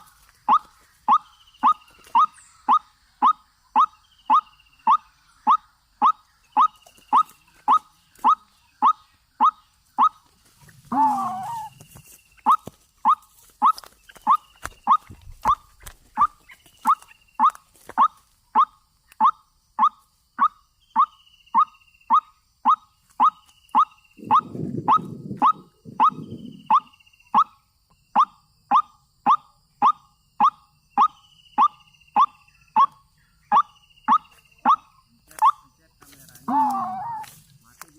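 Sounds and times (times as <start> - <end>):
waterhen calling: 0.0 - 11.8, 12.4 - 27.5, 36.5 - 37.4.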